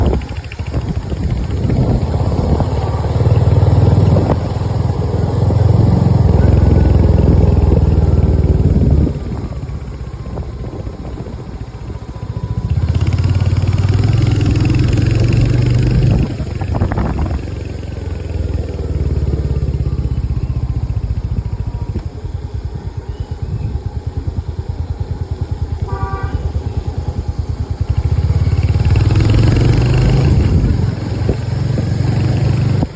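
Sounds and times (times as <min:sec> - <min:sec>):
vehicle engine rumbling: 0:00.0 - 0:32.9.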